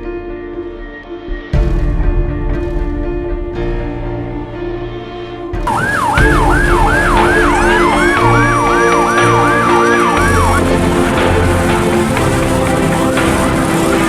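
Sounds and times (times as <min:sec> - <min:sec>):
background music: 0:00.0 - 0:14.0
steady siren tone: 0:05.6 - 0:14.0
siren yelping: 0:05.7 - 0:11.1.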